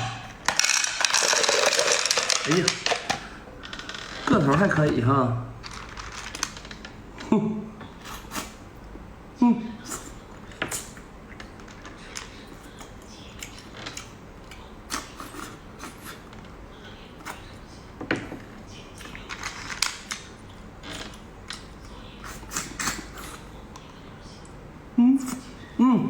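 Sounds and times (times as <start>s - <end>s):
chewing: 9.8s - 17.7s, 18.4s - 24.6s.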